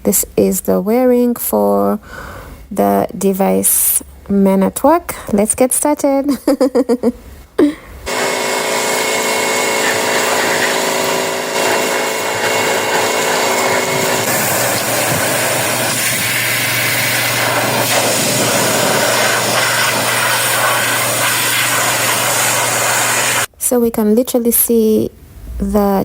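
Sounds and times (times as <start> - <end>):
pressure washer motor whining: 8.1 - 23.5
water jet hissing on roof tiles: 8.1 - 23.5.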